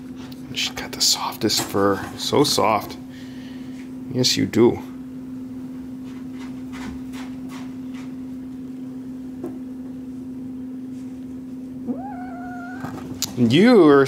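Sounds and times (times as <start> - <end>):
steady low hum: 8.2 - 14.0
higher tone: 11.8 - 13.0.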